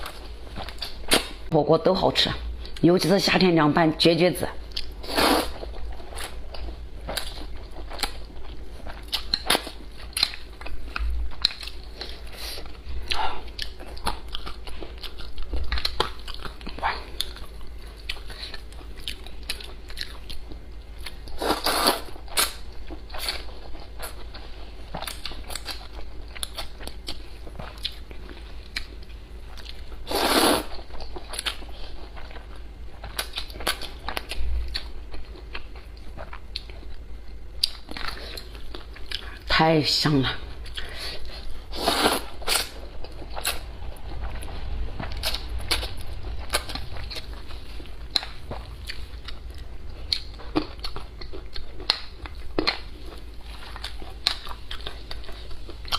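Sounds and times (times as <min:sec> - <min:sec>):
person chewing: 0:00.0 - 0:01.5, 0:04.7 - 0:39.5, 0:40.5 - 0:55.9
low hum: 0:40.3 - 0:55.9.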